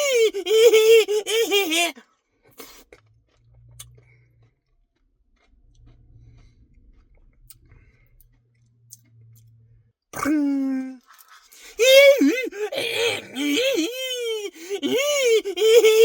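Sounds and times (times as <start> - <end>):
chewing ice cream: 1.9 - 9.6, 10.9 - 14.2
faint low hum: 2.9 - 11.0.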